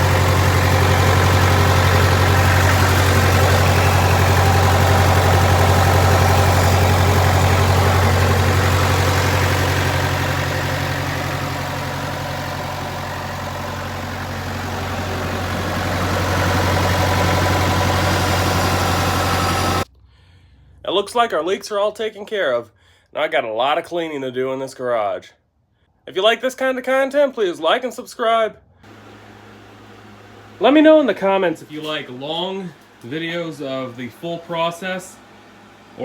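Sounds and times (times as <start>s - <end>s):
diesel engine idling: 0.0s - 19.9s, 28.8s - 36.0s.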